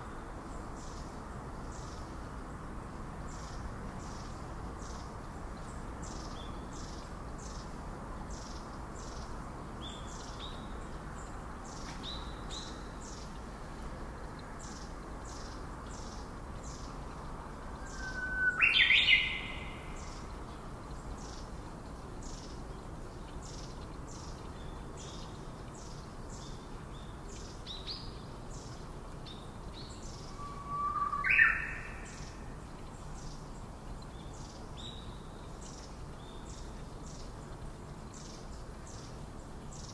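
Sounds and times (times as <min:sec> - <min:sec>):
steady hiss: 0:00.0 - 0:39.9
bird call sweeping up: 0:30.3 - 0:32.1.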